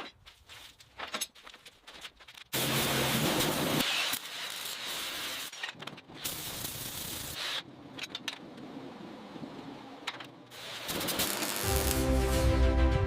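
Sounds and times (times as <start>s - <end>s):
hissing spray: 10.5s - 12.4s.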